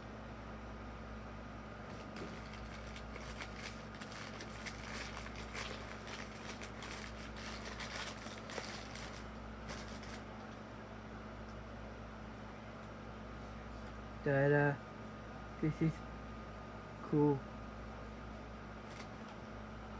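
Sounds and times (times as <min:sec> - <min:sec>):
steady low hum: 0:00.0 - 0:19.9
plastic clicks and crinkles: 0:01.9 - 0:10.5.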